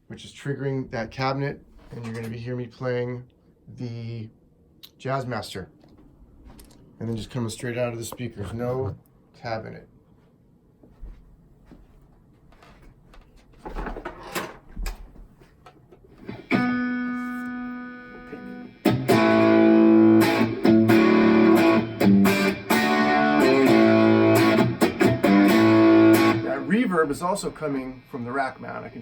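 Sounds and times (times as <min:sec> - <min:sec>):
electric guitar playing: 0:16.2 - 0:29.0
electric guitar chord ringing: 0:16.4 - 0:28.3.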